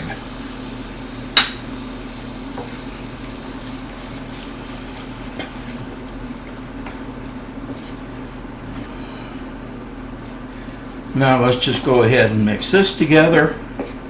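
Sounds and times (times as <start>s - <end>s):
food sizzling in a pan: 0.0s - 6.8s.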